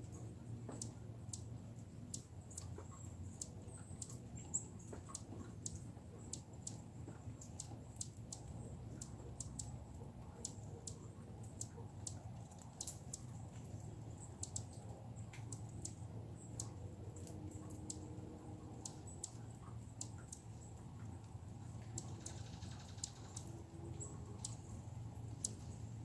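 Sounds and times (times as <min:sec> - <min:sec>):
low outdoor rumble: 0:00.0 - 0:26.0
sharp high clicks: 0:07.4 - 0:09.8, 0:14.3 - 0:18.2, 0:21.2 - 0:23.6.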